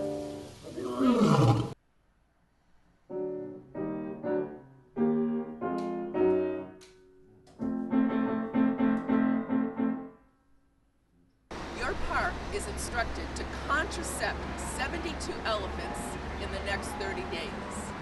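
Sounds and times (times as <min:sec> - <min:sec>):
animal roar falling in pitch: 0:00.8 - 0:01.8
piano chords: 0:03.1 - 0:10.3, 0:11.5 - 0:18.0.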